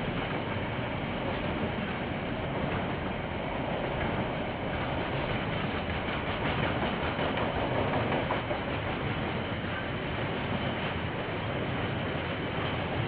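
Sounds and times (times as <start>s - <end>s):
train wheels rumbling on rails: 0.0s - 13.0s
wheels clicking over rail joints: 2.6s - 9.9s.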